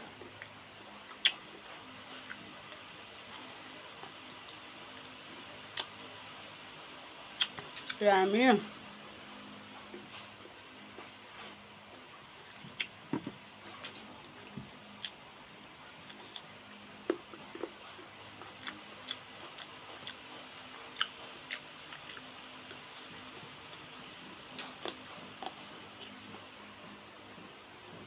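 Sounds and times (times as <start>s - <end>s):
chewing crunches: 0.1s - 6.2s, 13.7s - 26.3s
wet mouth clicks: 1.1s - 1.4s.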